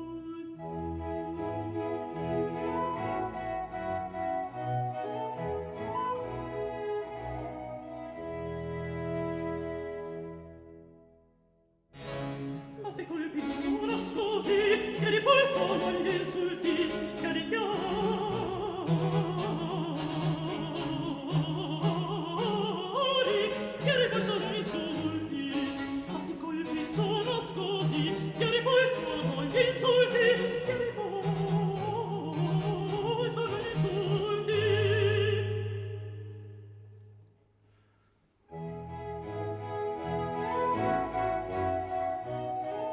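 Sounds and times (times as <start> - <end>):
orchestra strings: 0.0 - 10.9, 11.9 - 36.4, 38.5 - 42.9
operatic singing: 12.0 - 36.8.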